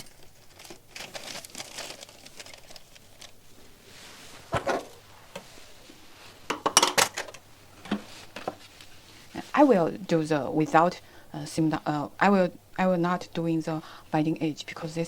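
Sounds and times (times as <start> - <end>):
paper sheets rustling: 0.0 - 5.7.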